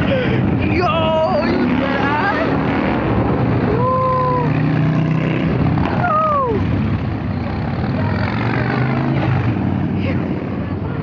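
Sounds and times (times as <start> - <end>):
motorcycle engines droning: 0.0 - 11.0.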